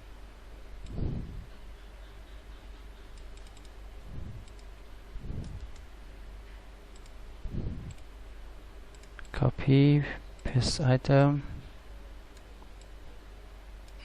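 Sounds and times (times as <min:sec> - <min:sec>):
mouse and keyboard clicks: 0:03.1 - 0:03.8
soft low thumps: 0:07.4 - 0:08.0.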